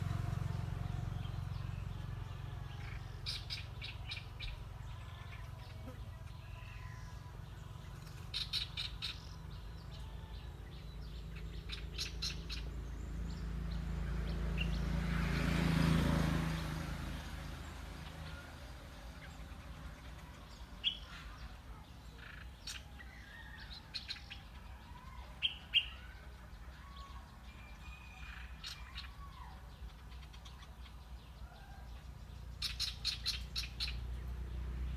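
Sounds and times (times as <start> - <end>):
small bird chirping: 2.8 - 14.9, 27.6 - 34.7.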